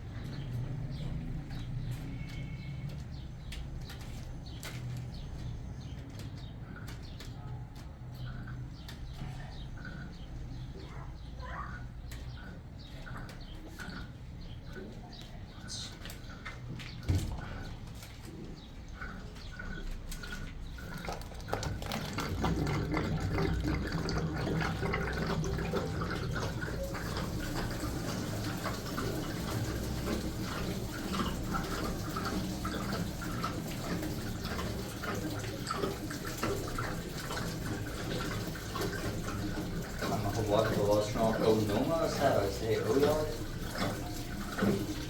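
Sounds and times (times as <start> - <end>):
water running and splashing: 13.6 - 45.0.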